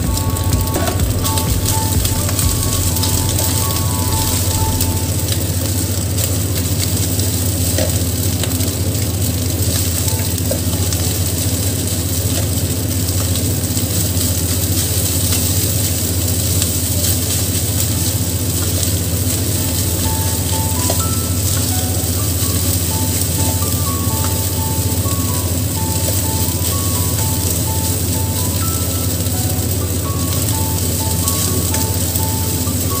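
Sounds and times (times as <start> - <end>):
steady low hum: 0.0 - 6.6
rice sizzling in a wok: 0.0 - 33.0.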